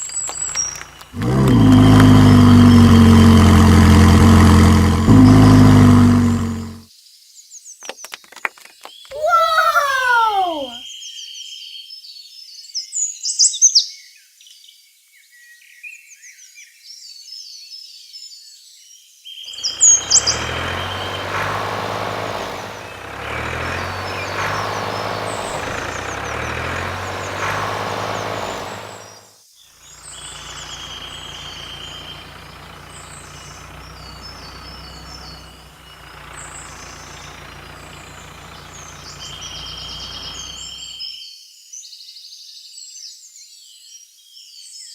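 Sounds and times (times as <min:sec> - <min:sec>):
heavy engine running: 0:00.8 - 0:06.8, 0:19.6 - 0:29.2, 0:30.4 - 0:40.8
steady engine hum: 0:01.2 - 0:06.8, 0:19.6 - 0:29.2, 0:30.1 - 0:40.9.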